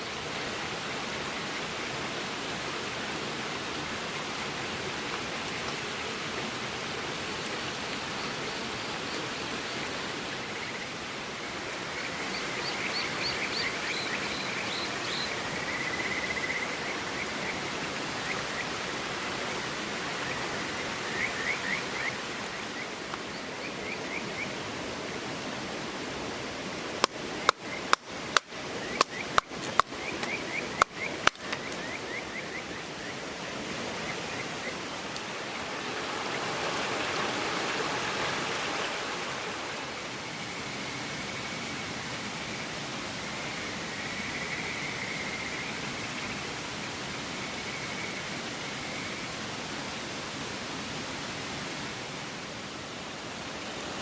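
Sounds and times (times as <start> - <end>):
river flowing: 0.0 - 54.0
campfire wood crackling: 23.0 - 23.3, 26.9 - 31.8, 35.0 - 35.6
small birds chirping: 27.0 - 35.8.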